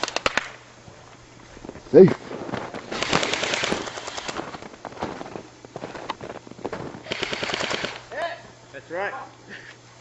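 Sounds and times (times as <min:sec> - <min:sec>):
airsoft rifles firing: 0:00.0 - 0:00.6, 0:02.8 - 0:05.1, 0:06.6 - 0:08.2.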